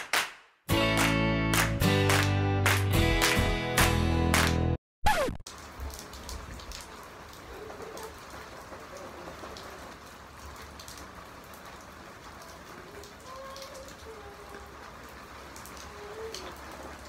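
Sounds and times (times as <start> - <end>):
steady rain falling: 5.5 - 17.0.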